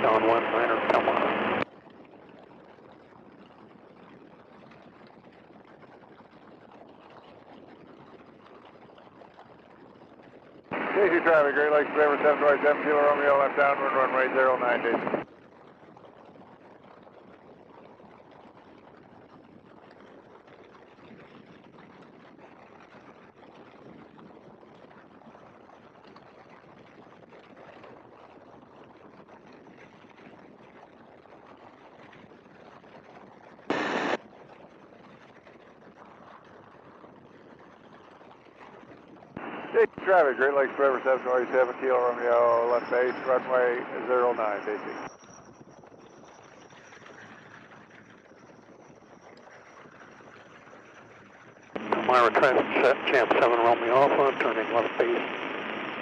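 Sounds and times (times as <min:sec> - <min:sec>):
biplane engine and airflow rushing: 0:00.0 - 0:01.6, 0:10.7 - 0:15.2, 0:33.7 - 0:34.2, 0:39.4 - 0:45.1, 0:51.7 - 0:56.0.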